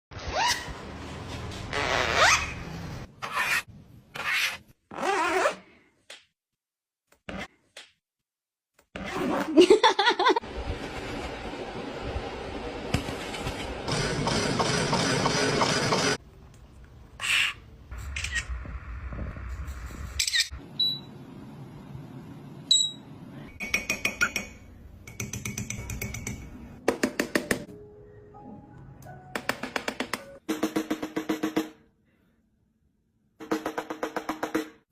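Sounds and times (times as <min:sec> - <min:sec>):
parrot raspy calls: 0:17.2 - 0:17.6.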